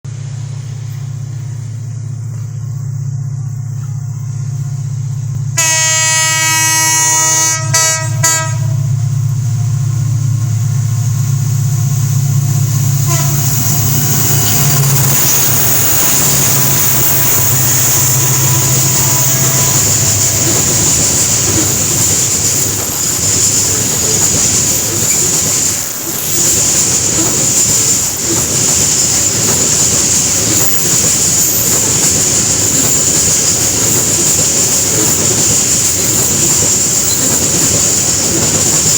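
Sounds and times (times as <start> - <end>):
high whine: 0.1 - 38.9
locomotive engine hum: 0.1 - 38.9
locomotive horn: 5.5 - 9.0, 13.0 - 14.0
wagons rolling on rails: 13.1 - 38.9.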